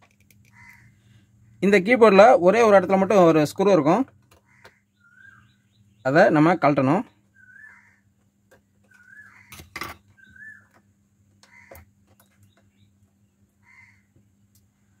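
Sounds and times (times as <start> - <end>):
faint bird chirps: 3.6 - 8.1, 8.8 - 14.1.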